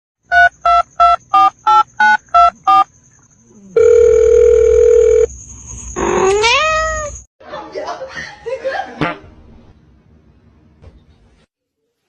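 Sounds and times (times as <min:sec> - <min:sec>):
telephone keypad beeps: 0:00.3 - 0:02.8
steady telephone tone: 0:03.8 - 0:05.3.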